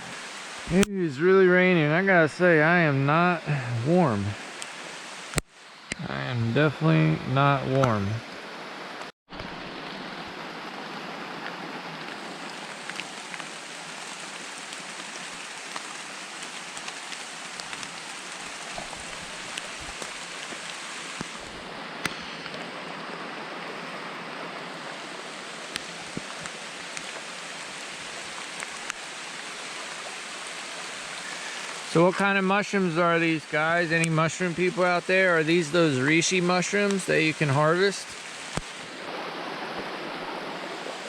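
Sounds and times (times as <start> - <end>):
raindrops ticking on surfaces: 0.0 - 1.0, 8.9 - 22.7, 24.6 - 39.0
heavy rain falling: 0.0 - 41.0.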